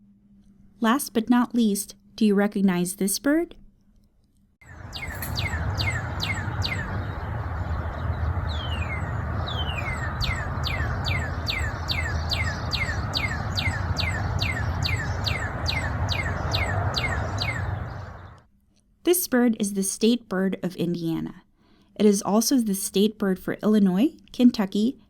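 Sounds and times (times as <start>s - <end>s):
bird singing clear whistles: 4.7s - 18.4s
low background rumble: 4.7s - 18.5s.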